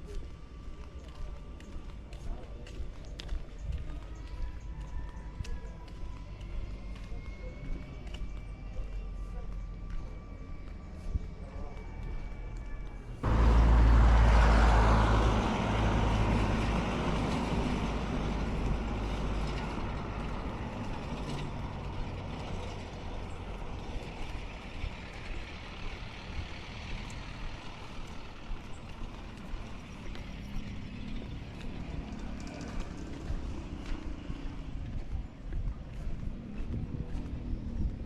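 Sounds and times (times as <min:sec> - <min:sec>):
motor vehicle rumble: 0:00.0 - 0:38.0
road noise: 0:00.0 - 0:38.0.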